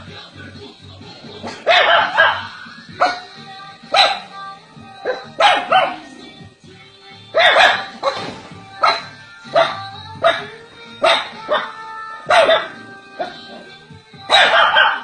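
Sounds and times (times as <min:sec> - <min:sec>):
background music: 0:00.0 - 0:15.0
dog barking: 0:01.5 - 0:03.3, 0:03.9 - 0:04.3, 0:05.0 - 0:06.1, 0:07.4 - 0:13.4, 0:14.3 - 0:15.0.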